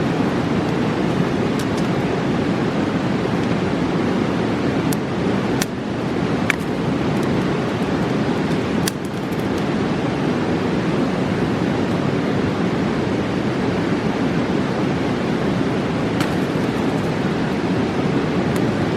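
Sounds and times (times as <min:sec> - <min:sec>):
campfire crackling: 0:00.0 - 0:10.2, 0:15.0 - 0:18.9
river rushing: 0:00.0 - 0:18.9.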